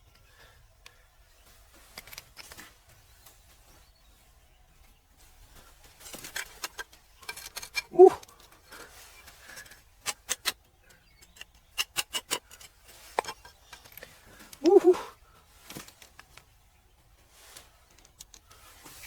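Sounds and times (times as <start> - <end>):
brief vocal exclamation: 7.9 - 8.2, 14.6 - 15.1.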